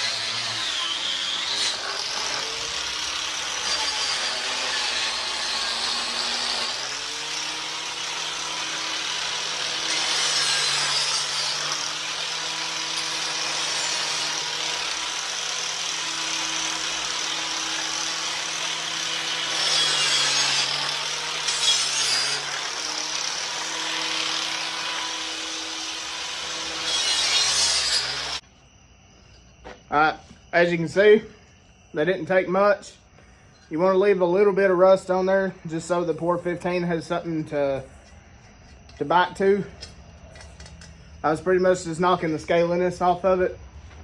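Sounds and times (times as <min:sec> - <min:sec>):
angle grinder motor running: 0:00.0 - 0:28.4.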